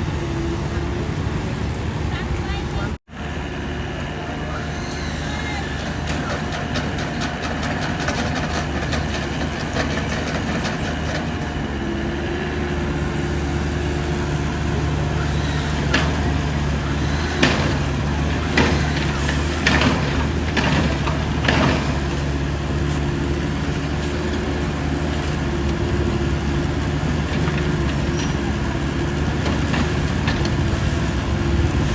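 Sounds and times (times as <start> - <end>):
diesel engine running: 0.0 - 31.9
sharp clanks and knocks: 5.7 - 11.7, 15.2 - 31.9.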